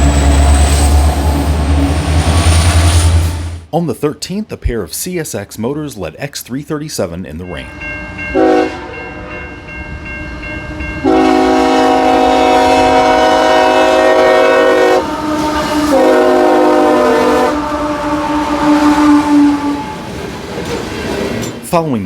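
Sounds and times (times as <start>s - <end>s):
train noise: 0.0s - 3.7s, 7.3s - 22.0s
locomotive air horn blasts: 8.3s - 9.4s, 10.7s - 20.0s.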